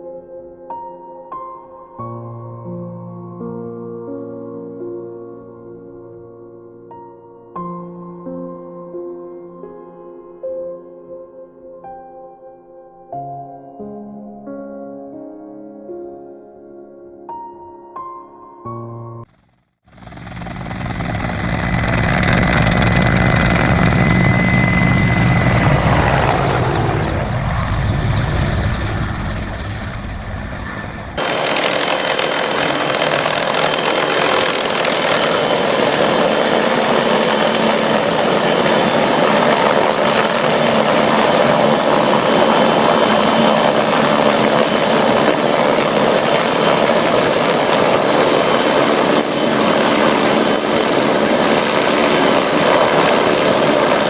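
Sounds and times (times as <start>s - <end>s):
helicopter rotor and engine: 19.9s - 54.0s
steady high whine: 19.9s - 54.0s.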